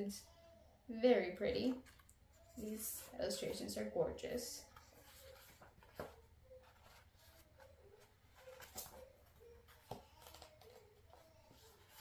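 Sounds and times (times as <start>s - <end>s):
book pages turning: 1.6s - 3.7s, 4.6s - 12.0s.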